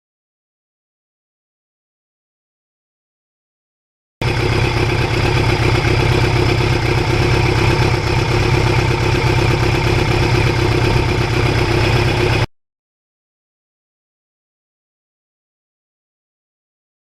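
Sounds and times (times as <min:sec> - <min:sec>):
motorcycle engine running: 0:04.2 - 0:12.5.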